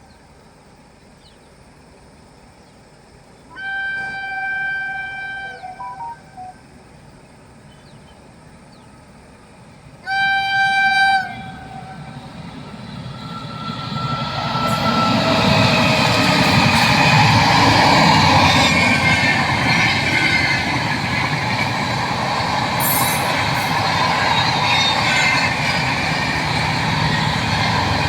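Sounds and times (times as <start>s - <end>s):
train wheel and rail rumble: 0.0s - 28.0s
locomotive horn: 3.5s - 6.6s, 10.1s - 12.4s, 13.4s - 21.7s, 22.8s - 26.4s.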